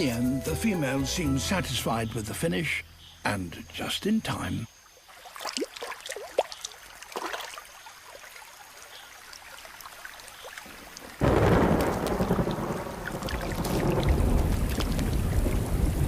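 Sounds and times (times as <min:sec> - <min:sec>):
water drips: 0:04.9 - 0:16.0
heavy rain downpour: 0:11.0 - 0:16.0
thunder: 0:11.2 - 0:16.0.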